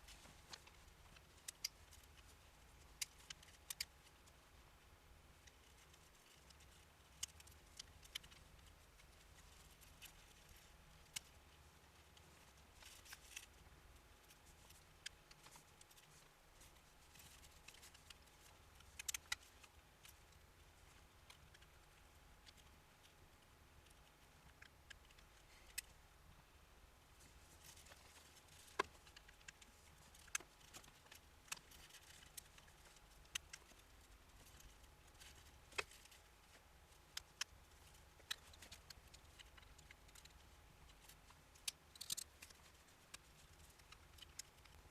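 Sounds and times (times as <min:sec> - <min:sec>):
quiet steady hum: 0:00.0 - 0:44.9.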